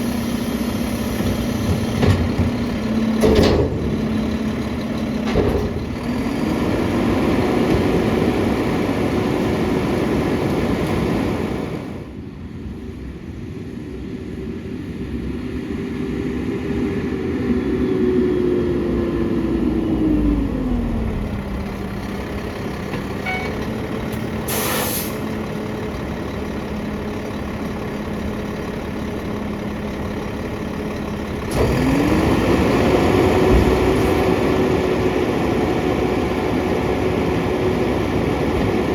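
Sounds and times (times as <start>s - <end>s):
diesel truck engine running: 0.0s - 12.2s, 17.2s - 38.9s
air hiss: 24.5s - 25.3s.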